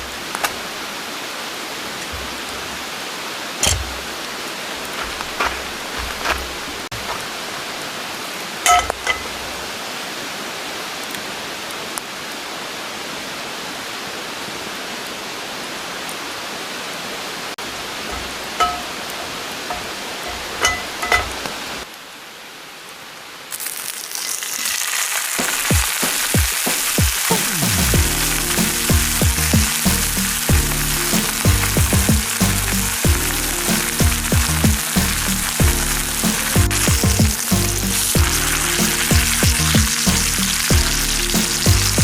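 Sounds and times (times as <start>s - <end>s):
metal cookware clinking: 18.2s - 19.0s, 19.7s - 21.4s
steady hiss: 23.1s - 42.0s
food sizzling in a pan: 24.1s - 42.0s.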